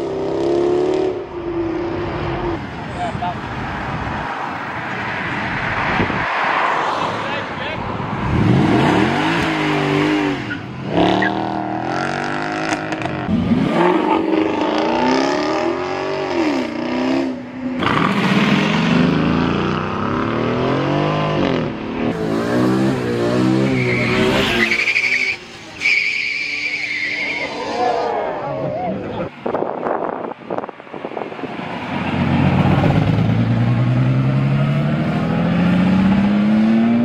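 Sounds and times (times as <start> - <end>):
cars revving and accelerating: 0.0 - 37.0
high squeal: 23.6 - 28.2.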